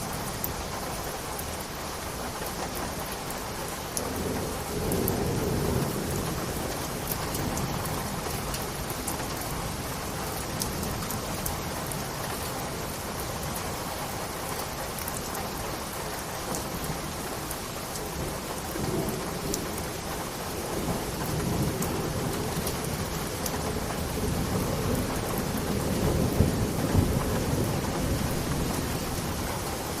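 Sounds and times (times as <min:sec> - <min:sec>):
steady rain falling: 0:00.0 - 0:30.0
low rolling thunder: 0:04.0 - 0:12.0, 0:18.0 - 0:30.0.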